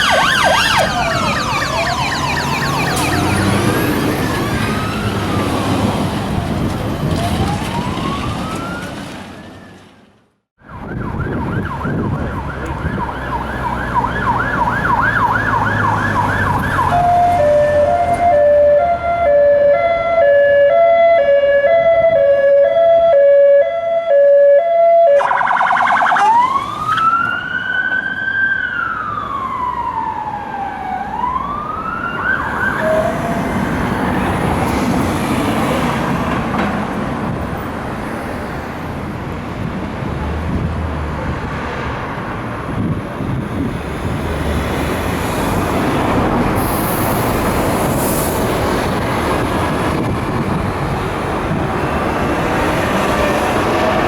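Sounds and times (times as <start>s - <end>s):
police siren: 0.0s - 10.0s, 10.6s - 36.3s
traffic engine and road noise: 0.0s - 54.0s.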